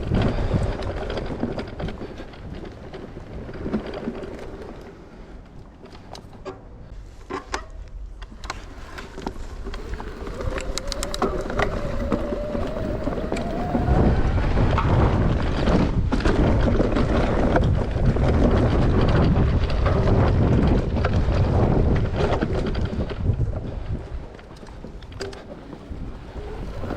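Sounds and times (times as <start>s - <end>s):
bike chain and suspension rattles: 0.0s - 5.0s, 8.3s - 26.9s
wind and tyre rush: 0.0s - 26.9s
electric motor whine: 9.6s - 15.0s.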